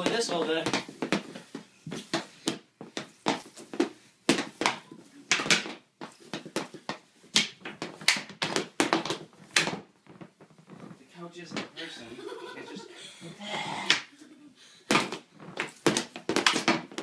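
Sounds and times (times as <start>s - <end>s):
hockey sticks clacking: 0.0s - 9.8s, 14.9s - 17.0s.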